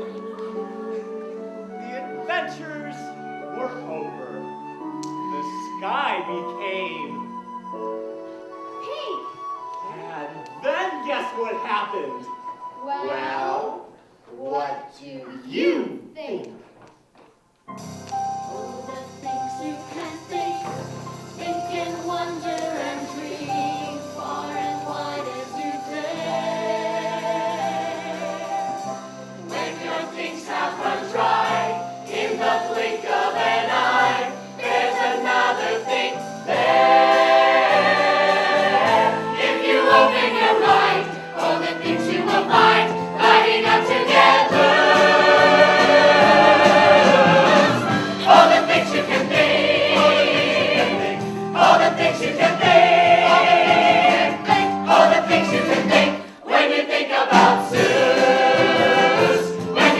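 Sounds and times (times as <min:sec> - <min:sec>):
chorus singing: 0:00.0 - 0:07.9, 0:18.2 - 0:59.9
instrumental accompaniment: 0:00.0 - 0:14.2, 0:17.6 - 0:59.9.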